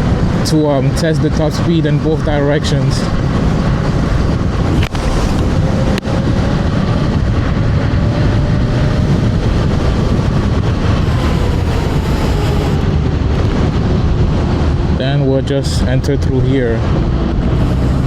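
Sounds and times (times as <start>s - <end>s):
wind buffeting microphone: 0.0s - 18.0s
faint electric motor whine: 8.6s - 13.0s.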